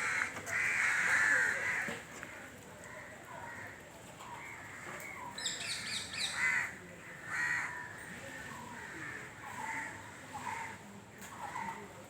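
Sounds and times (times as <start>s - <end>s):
crows cawing: 0.0s - 2.0s, 6.3s - 8.0s, 8.6s - 10.8s
small birds chirping: 4.2s - 6.4s.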